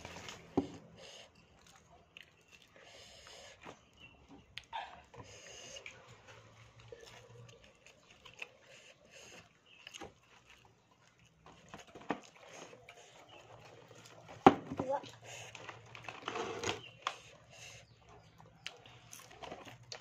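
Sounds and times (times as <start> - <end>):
faint chewing: 0.0 - 20.0.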